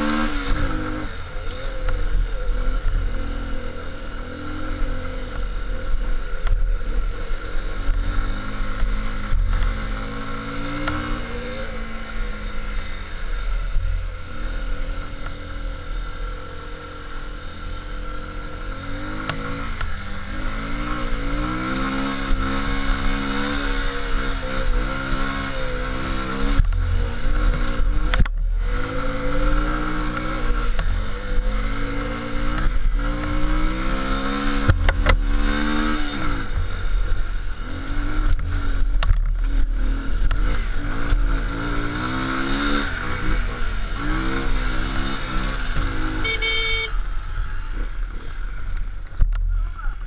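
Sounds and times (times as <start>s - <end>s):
car engine running: 0.0s - 50.0s
road rumble: 0.0s - 50.0s
short high beep: 46.2s - 47.0s.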